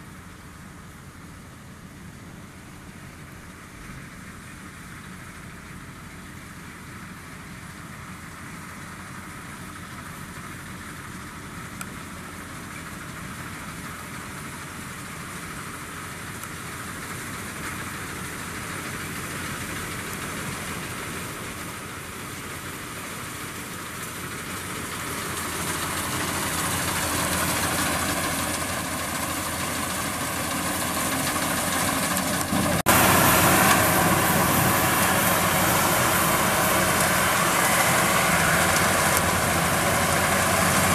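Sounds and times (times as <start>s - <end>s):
combine harvester engine running: 0.0s - 40.9s.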